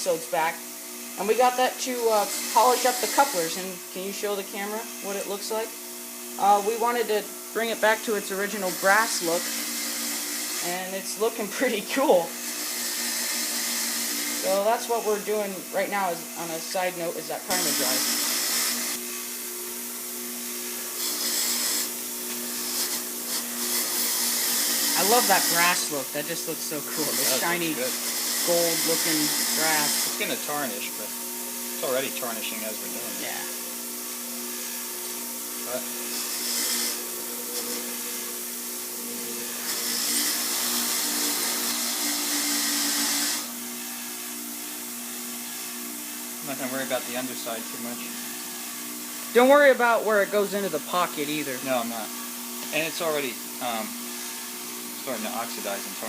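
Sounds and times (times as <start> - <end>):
wire brush wheel motor hum: 0.0 - 56.0
wire brush wheel running: 20.9 - 31.0.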